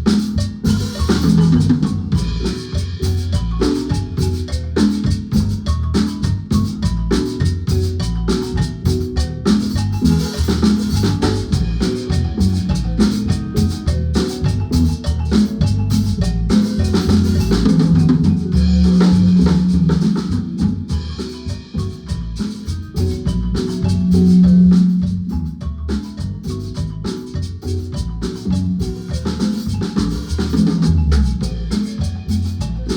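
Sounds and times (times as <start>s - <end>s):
marimba playing quick runs: 0.0s - 32.9s
drum kit hits: 14.4s - 22.3s.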